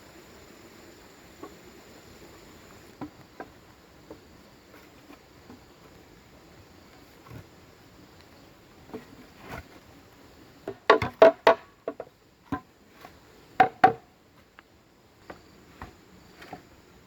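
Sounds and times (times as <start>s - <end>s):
knocks on hollow bamboo: 10.6s - 12.7s, 13.6s - 14.1s.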